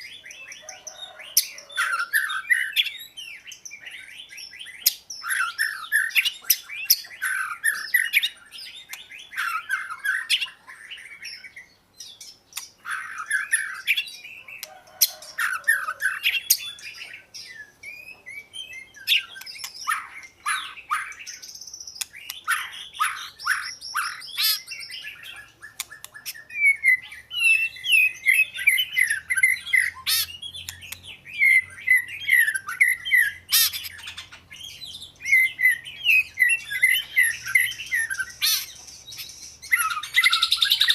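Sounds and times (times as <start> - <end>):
bird singing whistled phrases: 0.0 - 12.3, 15.2 - 40.9.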